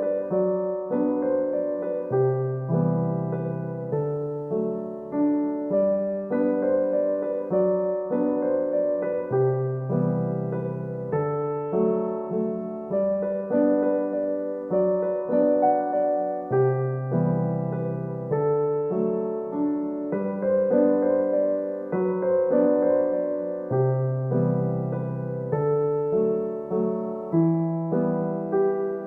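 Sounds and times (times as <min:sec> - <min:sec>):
gentle piano piece: 0:00.0 - 0:29.0.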